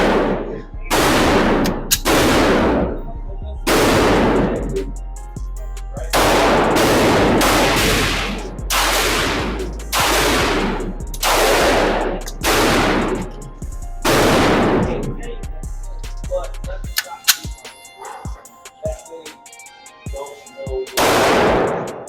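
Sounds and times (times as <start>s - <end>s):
pistol shots: 0.0s - 2.9s, 3.7s - 4.6s, 6.2s - 13.2s, 14.1s - 14.9s, 21.0s - 22.0s.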